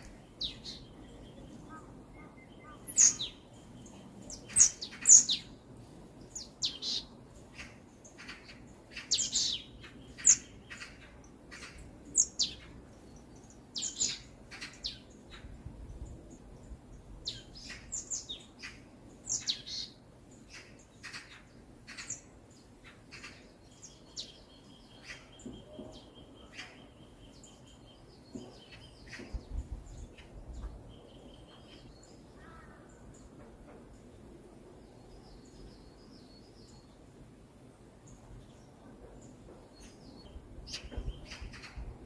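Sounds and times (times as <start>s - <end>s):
birds chirping: 0.0s - 5.6s, 6.2s - 15.4s, 17.0s - 33.4s
bird trilling: 1.7s - 3.4s.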